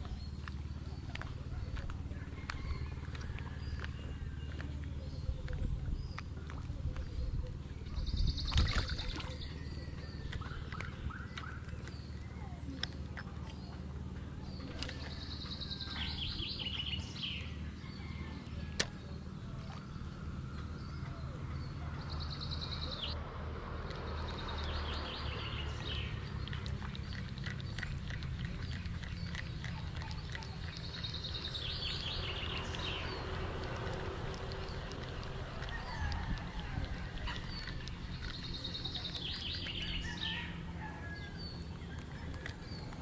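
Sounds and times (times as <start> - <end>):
songbird singing trill: 0.0 - 23.2, 23.8 - 43.0.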